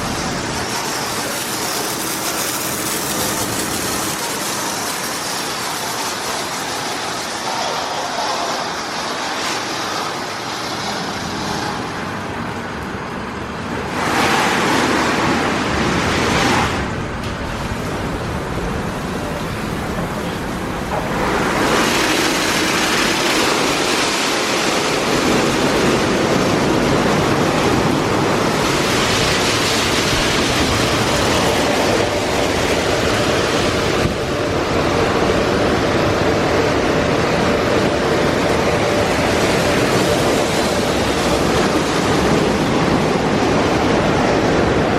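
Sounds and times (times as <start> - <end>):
car wash water spray hissing: 0.0 - 44.9.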